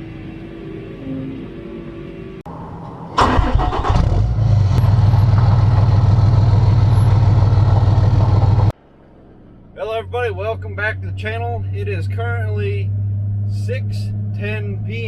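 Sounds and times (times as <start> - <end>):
engine cranking and idling: 3.2 - 13.7.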